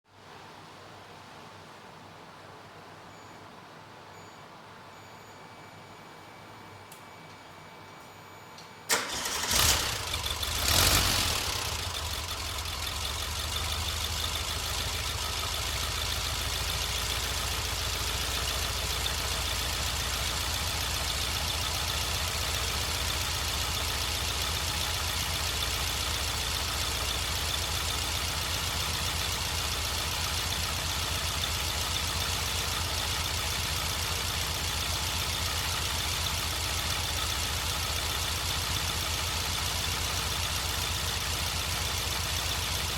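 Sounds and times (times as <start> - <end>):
engine starting and idling: 8.8 - 42.9.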